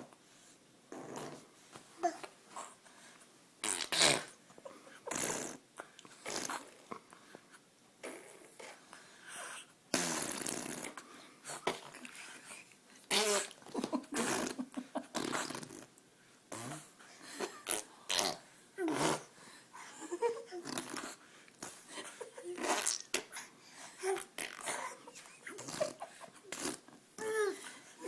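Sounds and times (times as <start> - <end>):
baby blowing raspberries: 3.6 - 4.4, 5.1 - 6.8, 9.9 - 13.6, 14.2 - 15.9, 16.5 - 19.3, 20.6 - 21.8, 22.6 - 26.9.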